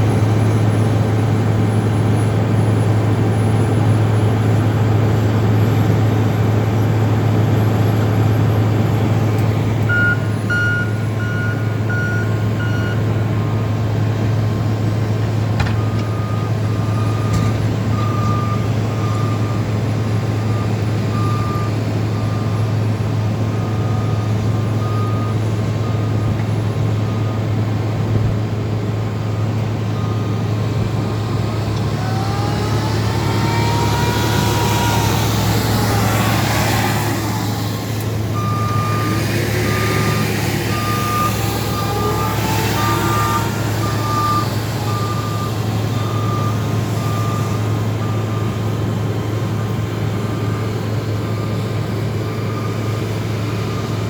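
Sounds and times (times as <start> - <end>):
diesel engines running under load: 0.0 - 54.0
backup alarm beeping: 9.9 - 13.6
rising tone: 31.6 - 47.5.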